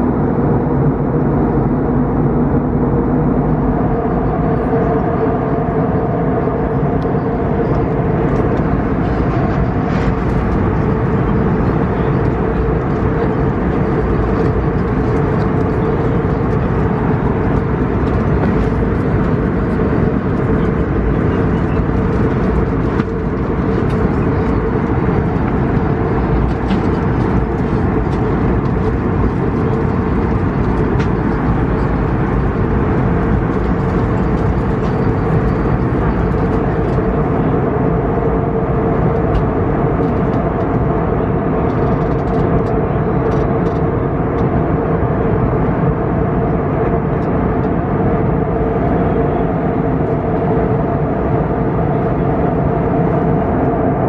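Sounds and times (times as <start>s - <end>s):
airplane cabin airflow and engine: 0.0s - 54.0s
constant low hum: 0.0s - 54.0s.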